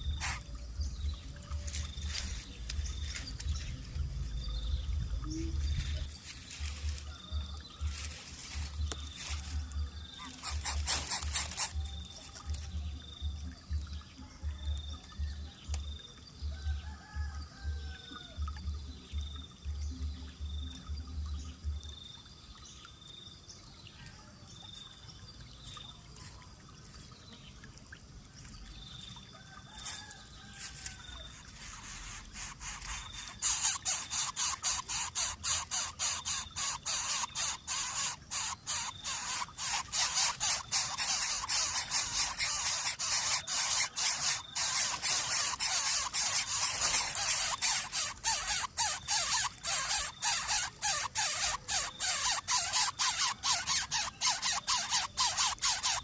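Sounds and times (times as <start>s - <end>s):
chicks giving hissing calls: 0.0s - 0.6s, 7.8s - 11.9s, 30.7s - 56.0s.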